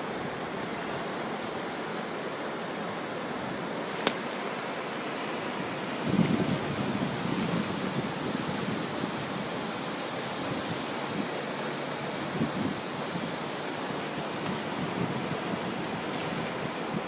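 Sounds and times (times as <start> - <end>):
flooded river roaring: 0.0 - 17.0
wind buffeting microphone: 5.6 - 11.4, 12.0 - 17.0.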